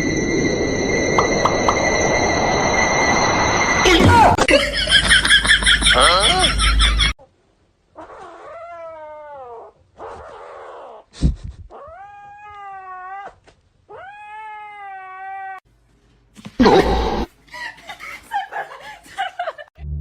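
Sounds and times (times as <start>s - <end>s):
cat yowling: 8.0s - 9.8s, 11.8s - 15.6s.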